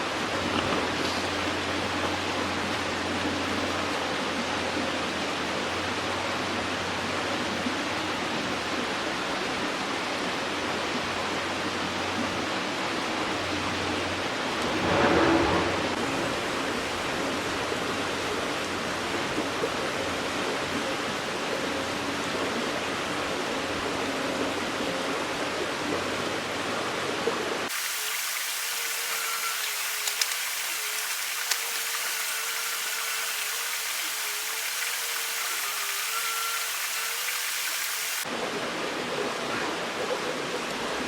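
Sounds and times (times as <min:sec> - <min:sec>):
stream water rushing: 0:27.6 - 0:40.0.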